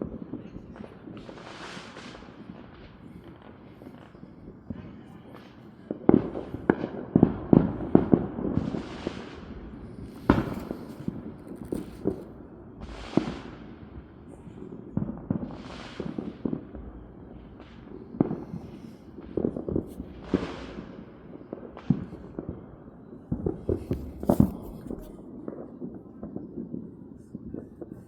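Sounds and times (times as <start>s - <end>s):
fireworks and firecrackers banging: 0.0s - 28.0s
fireworks hissing: 8.5s - 13.8s, 15.4s - 16.5s, 23.4s - 25.2s.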